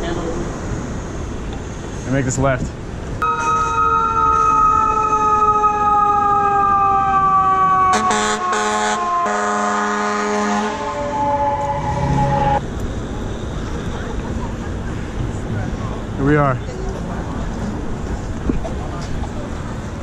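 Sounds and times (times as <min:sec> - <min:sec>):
fire truck siren wailing: 0:03.2 - 0:12.6
air horn blasts: 0:07.9 - 0:12.6.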